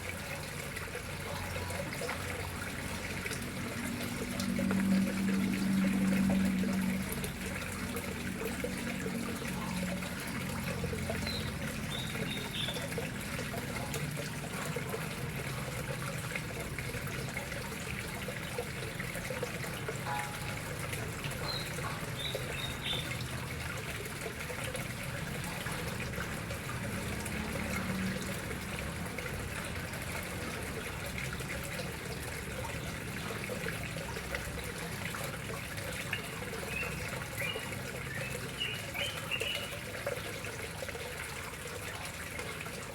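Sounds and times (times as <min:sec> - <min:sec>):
water trickling into pond: 0:00.0 - 0:42.9.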